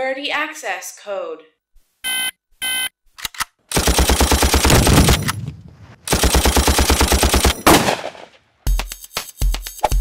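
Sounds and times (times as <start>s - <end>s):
automatic gunfire bursts: 3.7s - 8.3s
single loud gunshot crack: 7.7s - 8.4s.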